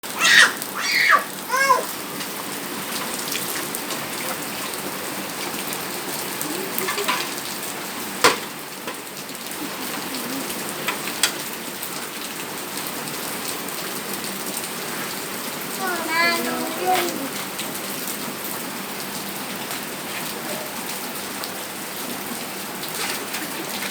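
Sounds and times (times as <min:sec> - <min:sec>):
rain pattering on surfaces: 0:00.0 - 0:23.9
high-pitched voice: 0:00.2 - 0:01.9, 0:15.8 - 0:17.4.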